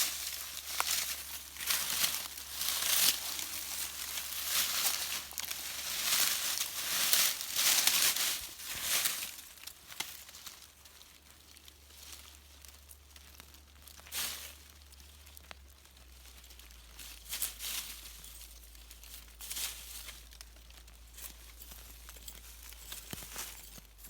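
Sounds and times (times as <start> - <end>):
dry leaves rustling and crunching: 0.0 - 24.0.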